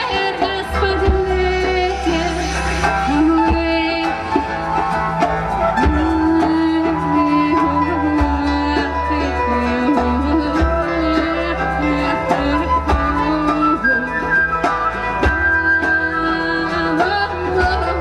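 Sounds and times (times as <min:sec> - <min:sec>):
bass: 0:00.0 - 0:18.0
drums: 0:00.0 - 0:18.0
guitar: 0:00.0 - 0:18.0
wavering lead melody: 0:00.0 - 0:18.0.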